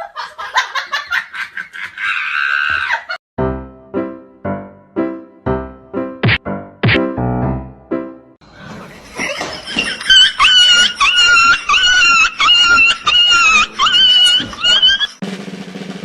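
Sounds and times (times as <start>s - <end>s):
animal high-pitched calls: 9.3s - 15.2s.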